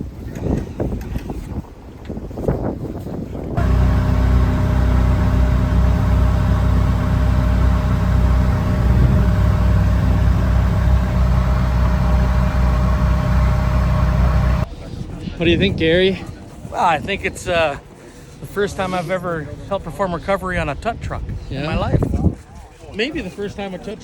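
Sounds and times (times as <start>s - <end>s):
vehicle engine droning: 3.6s - 14.7s.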